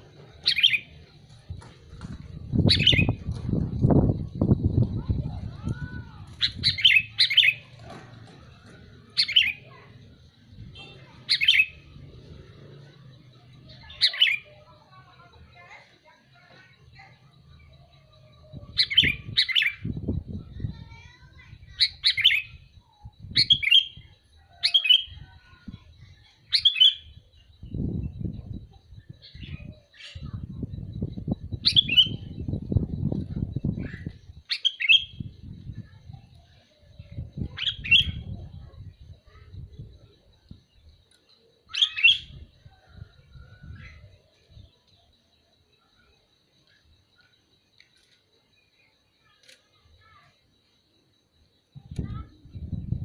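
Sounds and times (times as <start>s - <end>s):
bulbul calling: 0.0s - 15.7s, 16.4s - 39.9s, 41.7s - 44.6s
bird calling: 41.7s - 42.9s.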